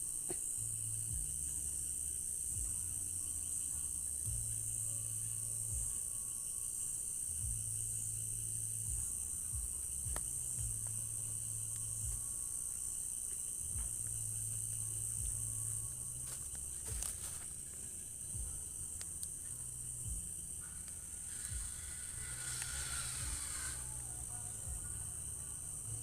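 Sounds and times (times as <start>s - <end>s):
crickets chirping: 0.0s - 26.0s
low rumble: 0.6s - 6.0s, 13.6s - 26.0s.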